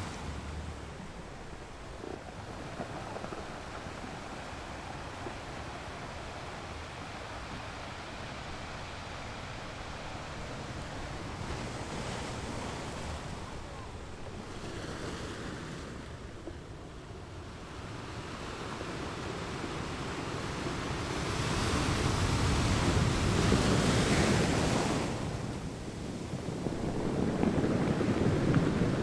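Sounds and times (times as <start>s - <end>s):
ocean waves crashing on rocks: 0.0s - 29.0s.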